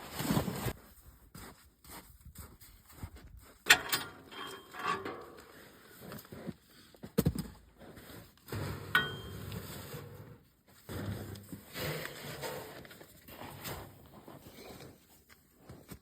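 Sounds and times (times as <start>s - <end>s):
rustling and scraping: 2.4s - 16.0s
metallic clink: 3.7s - 5.6s, 9.0s - 9.7s.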